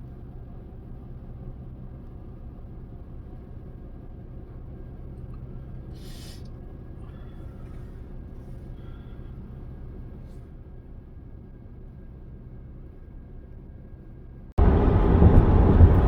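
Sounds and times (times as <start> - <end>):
vehicle rumble from inside: 0.0 - 16.0
brief hiss: 5.9 - 6.6.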